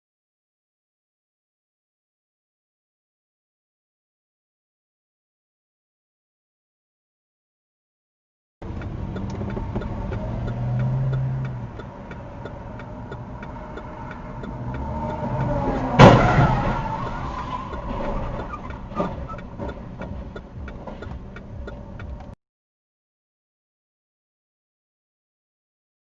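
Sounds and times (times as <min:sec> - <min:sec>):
car engine running: 0:08.6 - 0:22.4
faint steady ticking: 0:08.6 - 0:22.4
collision crash: 0:15.8 - 0:19.3.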